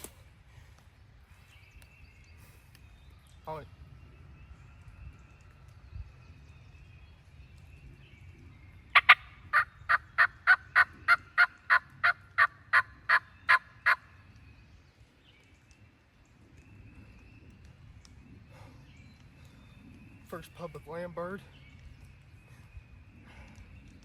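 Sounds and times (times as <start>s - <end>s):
turkey yelping: 9.0s - 14.0s.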